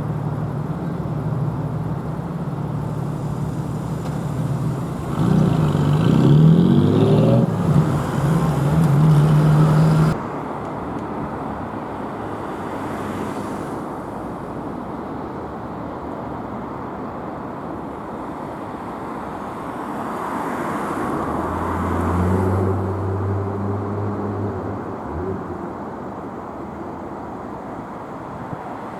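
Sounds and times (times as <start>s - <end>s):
engine running low: 0.0s - 16.9s, 21.0s - 28.6s
road traffic noise: 0.0s - 28.9s
engine revving up: 3.0s - 10.2s, 21.2s - 25.9s.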